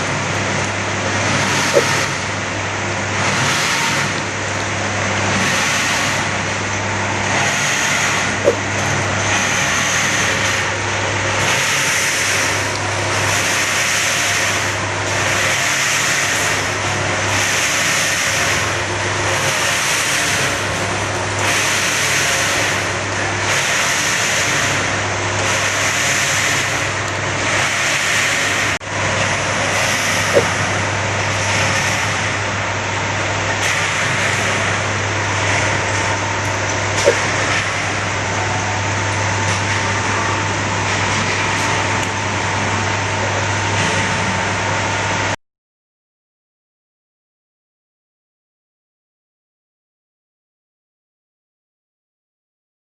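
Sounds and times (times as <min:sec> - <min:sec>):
crop-drying machine humming: 0:00.0 - 0:45.4.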